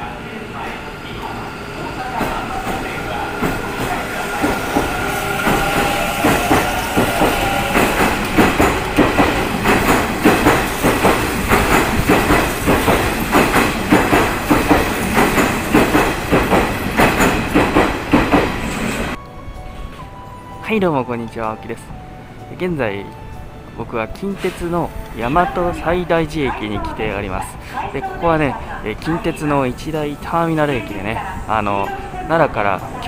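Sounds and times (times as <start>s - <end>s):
electric train whine: 0.0s - 20.6s, 21.8s - 33.0s
wheels clacking over rail joints: 2.1s - 19.1s.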